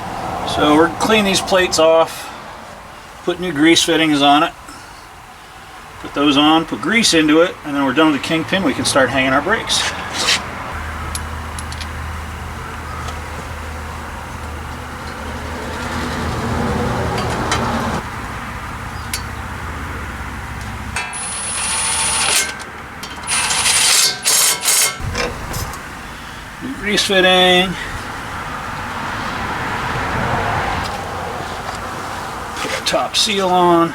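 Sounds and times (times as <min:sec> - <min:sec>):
hand tools scraping metal: 0:09.7 - 0:10.6, 0:21.0 - 0:25.8, 0:32.5 - 0:33.4
steady low hum: 0:24.9 - 0:30.2.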